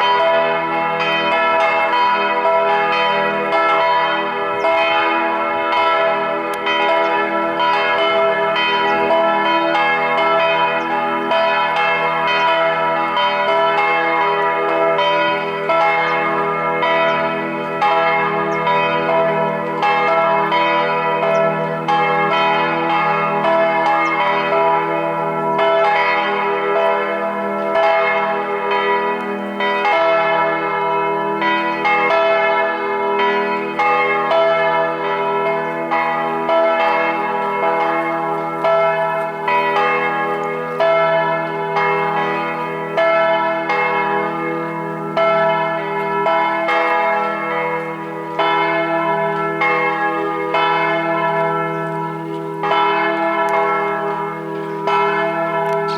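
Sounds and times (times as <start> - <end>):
church bells pealing: 0.0 - 55.9.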